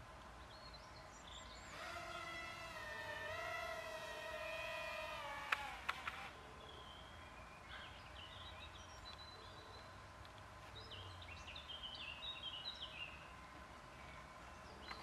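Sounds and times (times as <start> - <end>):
birds chirping: 0.3 - 10.0.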